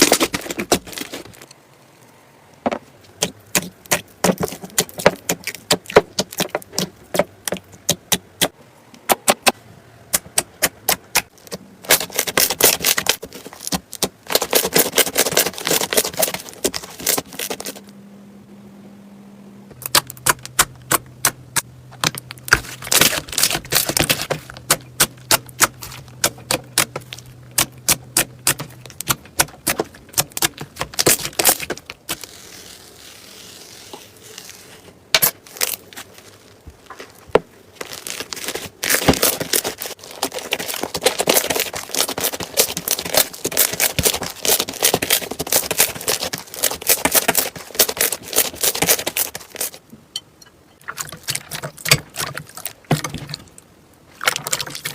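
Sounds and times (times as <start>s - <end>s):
slime clicking and crackling: 3.2s - 8.5s, 9.4s - 17.8s, 19.8s - 49.8s.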